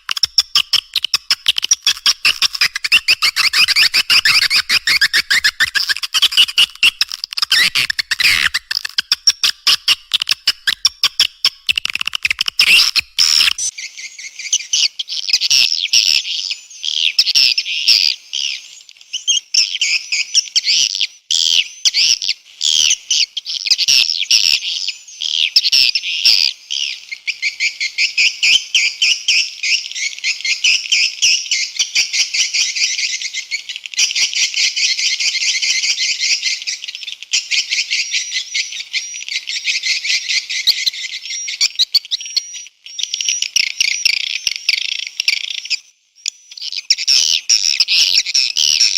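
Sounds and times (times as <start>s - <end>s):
sharp clicks: 0.0s - 13.7s
swiftlet twittering chirps: 0.0s - 14.6s.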